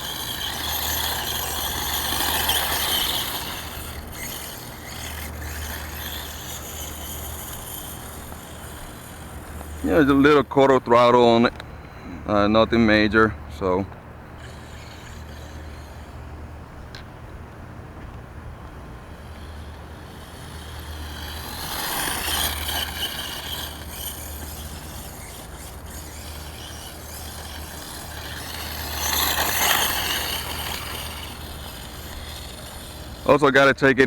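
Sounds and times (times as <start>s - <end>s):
rc truck motor and drivetrain: 0.0s - 34.0s
tyre noise: 17.9s - 34.0s.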